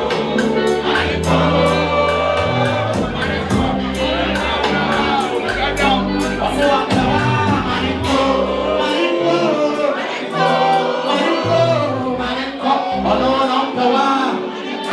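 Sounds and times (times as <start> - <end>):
stepping bass line: 0.0 - 8.8
person singing: 0.0 - 14.9.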